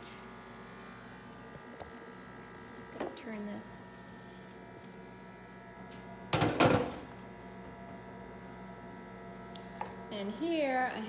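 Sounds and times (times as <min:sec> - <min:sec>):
kitchen appliance humming: 0:00.0 - 0:11.0.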